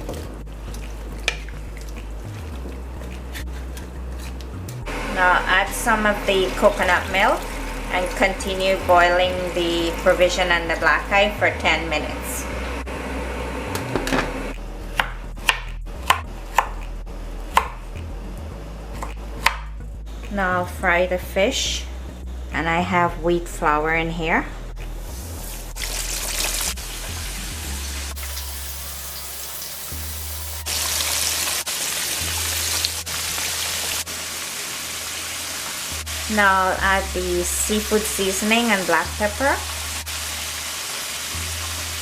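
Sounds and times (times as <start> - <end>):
low steady hum: 0.0 - 25.8
fish deep-frying in oil: 4.9 - 11.2, 25.8 - 42.0.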